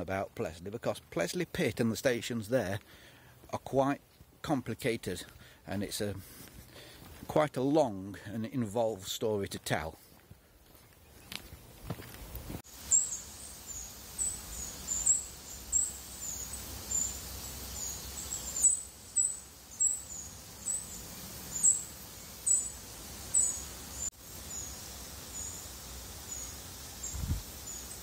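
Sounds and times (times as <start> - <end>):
small bird chirping: 12.8 - 28.0.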